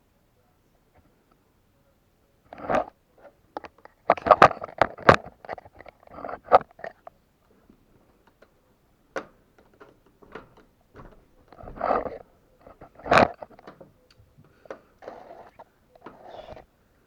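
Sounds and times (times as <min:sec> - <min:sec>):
scraping and rustling: 0:09.5 - 0:16.7.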